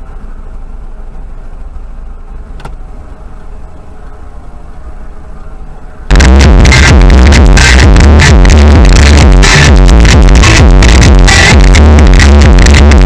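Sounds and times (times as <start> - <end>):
car engine rumble: 0.0 - 13.0
road noise: 0.0 - 13.0
electronic dance music: 6.1 - 13.0.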